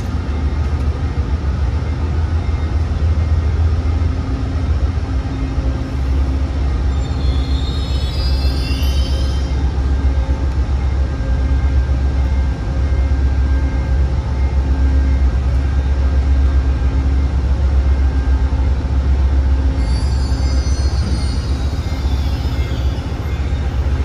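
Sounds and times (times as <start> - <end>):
train rumbling on rails: 0.0 - 24.0
thin high-pitched wheel squeal: 6.9 - 9.6, 19.8 - 23.7.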